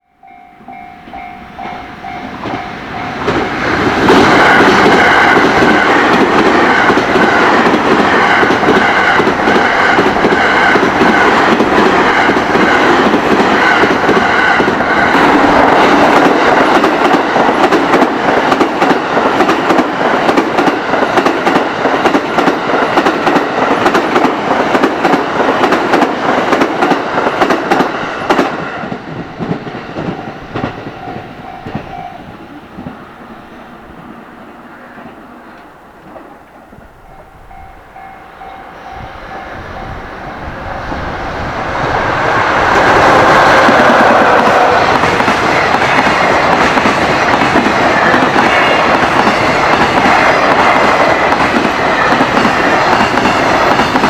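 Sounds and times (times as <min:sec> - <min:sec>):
level crossing warning bell: 0:00.0 - 0:03.9, 0:30.0 - 0:33.5, 0:37.0 - 0:40.6
train wheels clickety-clack: 0:00.6 - 0:33.1, 0:37.6 - 0:54.0.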